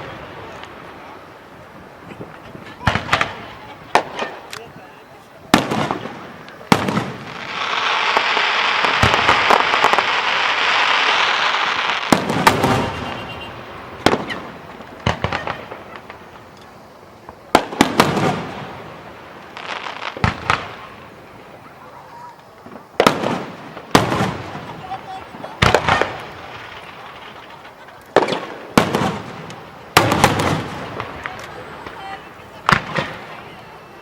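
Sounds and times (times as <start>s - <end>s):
firework crackling hiss: 0.0s - 34.0s
firework shells bursting: 5.5s - 21.6s.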